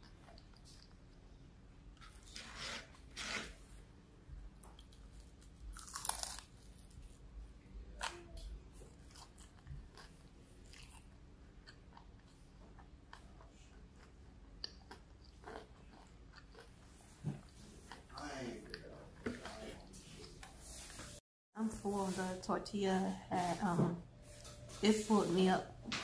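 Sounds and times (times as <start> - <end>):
chewing with mouth clicks: 0.0 - 1.4, 8.0 - 19.6
crunchy bite into fried food: 5.7 - 6.7.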